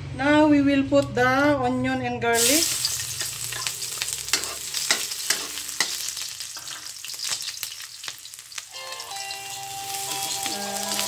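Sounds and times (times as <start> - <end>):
onion and garlic sizzling in oil: 2.4 - 11.0
spatula scraping a pan: 2.9 - 7.4.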